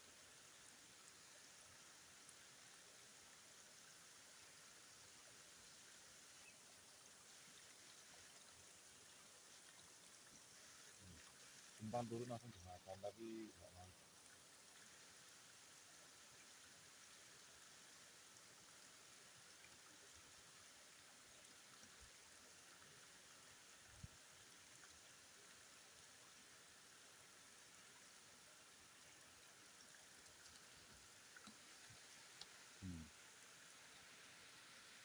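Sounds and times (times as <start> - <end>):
faint outdoor ambience hiss: 0.0 - 35.0.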